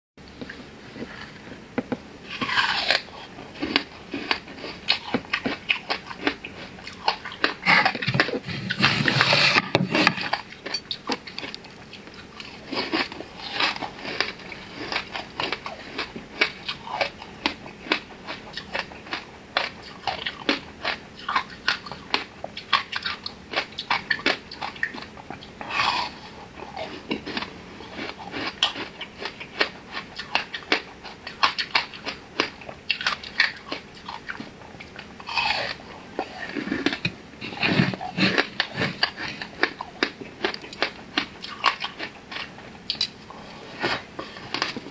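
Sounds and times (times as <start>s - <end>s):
chewing and mouth smacks: 38.3s - 44.9s.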